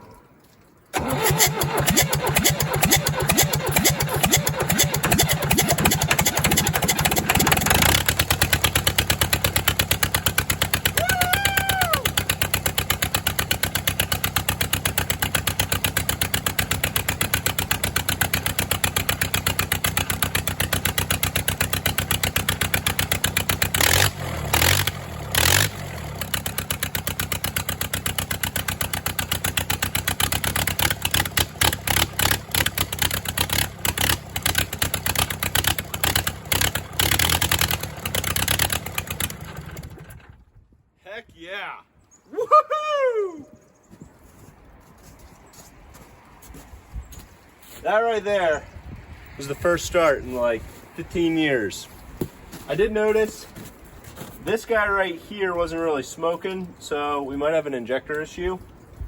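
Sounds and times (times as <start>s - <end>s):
diesel engine cranking on starter: 0.8s - 40.6s
diesel engine running loud: 0.9s - 40.3s.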